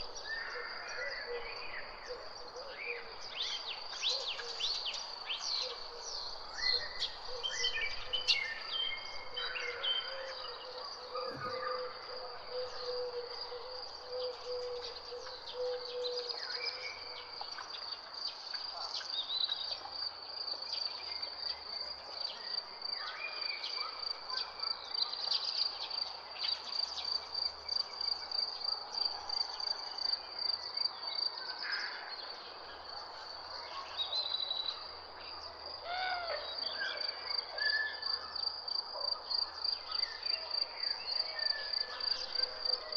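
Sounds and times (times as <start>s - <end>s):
birds chirping and calling: 6.6s - 17.2s.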